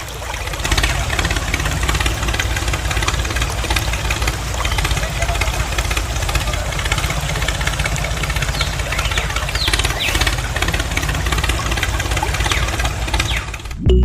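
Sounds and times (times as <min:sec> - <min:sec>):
small engine running: 0:00.0 - 0:13.9.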